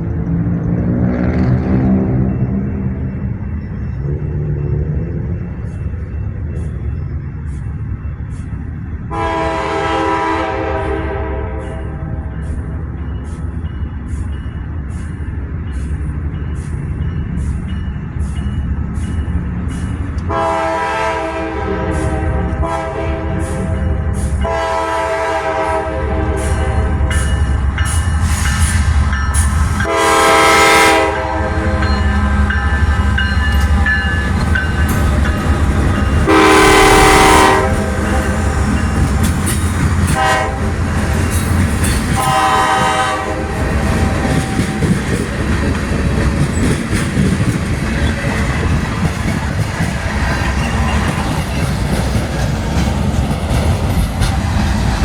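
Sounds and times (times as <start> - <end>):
rumble of passing train: 0.0 - 55.0
locomotive air horn blasts: 9.1 - 12.1, 20.3 - 27.1, 29.8 - 32.5, 36.2 - 38.6, 40.1 - 40.8, 42.2 - 44.9
wheels clicking over rail joints: 37.7 - 55.0.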